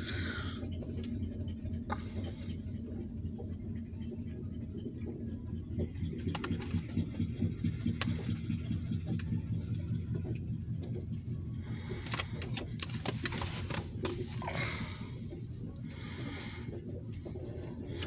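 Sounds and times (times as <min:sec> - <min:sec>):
wheels clicking and clacking: 0:12.0 - 0:15.9.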